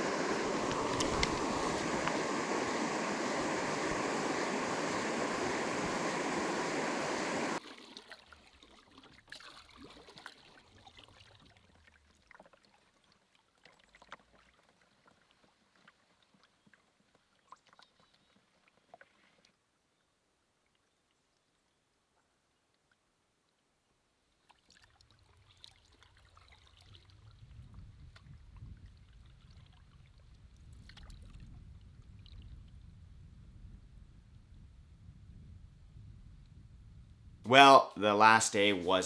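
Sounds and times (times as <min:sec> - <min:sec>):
steady rushing noise: 0:00.0 - 0:07.6.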